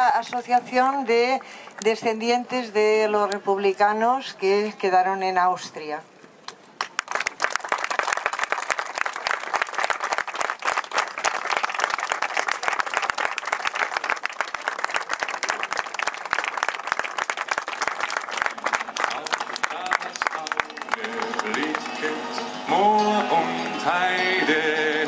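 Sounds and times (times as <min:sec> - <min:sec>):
crowd applauding: 0:06.8 - 0:24.8.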